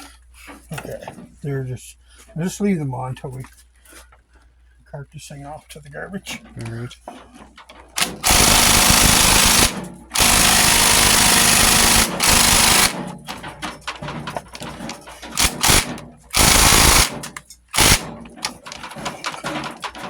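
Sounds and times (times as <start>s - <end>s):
handheld power tool bursts: 8.0s - 13.4s, 14.6s - 19.3s.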